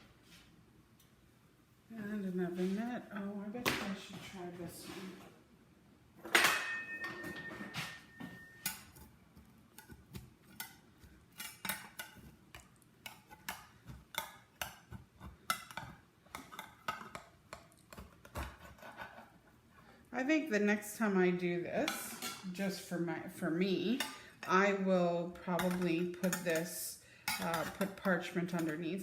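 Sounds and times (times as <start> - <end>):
spatula scraping and tapping: 7.2 - 19.6, 25.4 - 29.0
spatula clanking on baking pan: 25.5 - 28.8.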